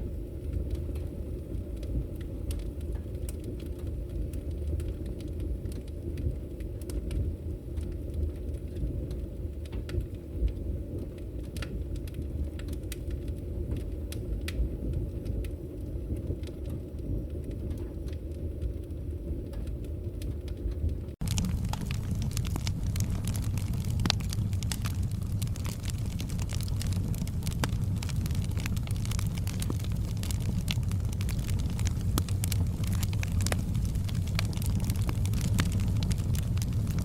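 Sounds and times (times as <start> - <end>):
fire flames rumbling: 0.0 - 37.0
firewood crackling and popping: 0.0 - 37.0.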